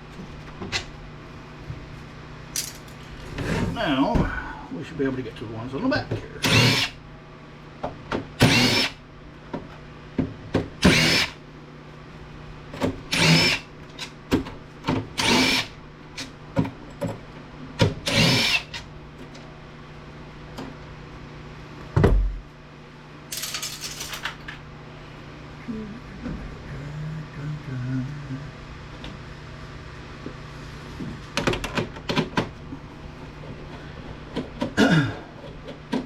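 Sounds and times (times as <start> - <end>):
clicks of parts handled: 2.6 - 3.0.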